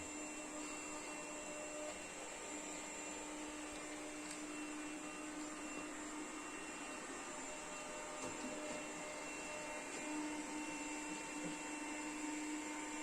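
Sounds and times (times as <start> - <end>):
robot vacuum running: 0.0 - 13.0.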